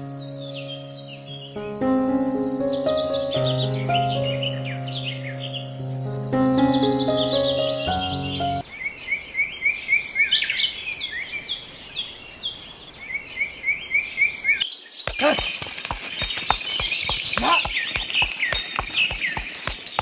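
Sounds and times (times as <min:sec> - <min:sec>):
birds chirping: 0:03.4 - 0:20.0
horse hooves clip-clopping: 0:15.1 - 0:20.0.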